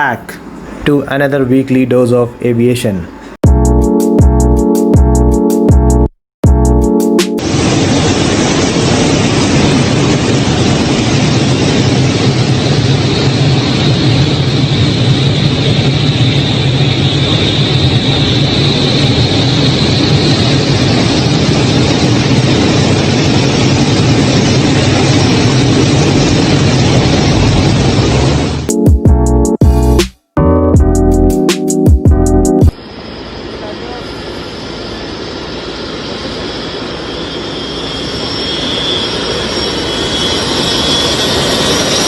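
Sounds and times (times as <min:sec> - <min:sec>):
high whine: 0:03.4 - 0:42.0
helicopter engine and rotor noise: 0:07.2 - 0:28.9, 0:32.7 - 0:42.0.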